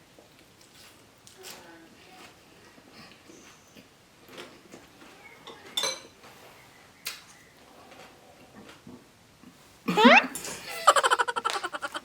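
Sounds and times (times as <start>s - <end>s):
cutlery clinking against a dish: 5.5s - 6.2s.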